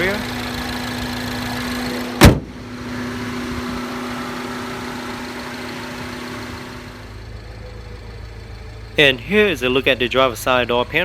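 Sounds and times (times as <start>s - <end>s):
car engine idling: 0.0s - 11.0s
door slam: 2.2s - 2.6s.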